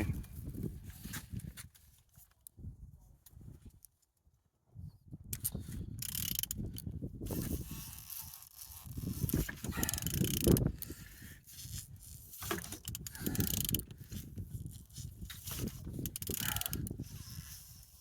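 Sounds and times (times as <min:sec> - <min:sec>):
engine clicking and scraping: 0:05.4 - 0:18.0.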